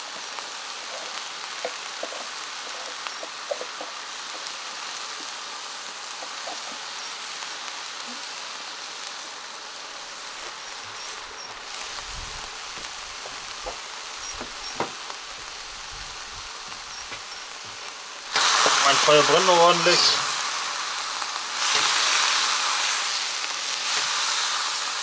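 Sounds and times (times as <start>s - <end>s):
food sizzling in a wok: 0.0s - 25.0s
sharp pops: 12.7s - 15.2s, 16.7s - 19.0s.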